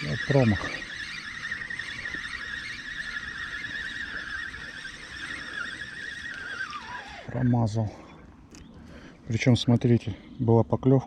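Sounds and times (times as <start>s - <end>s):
spinning reel whine: 0.0s - 8.2s.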